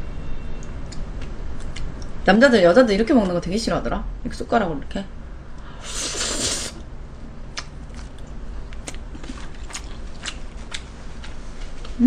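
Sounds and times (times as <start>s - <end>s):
steady low hum: 0.0s - 12.0s
mouth clicks and smacks: 7.5s - 10.9s
person chewing food: 7.5s - 11.4s.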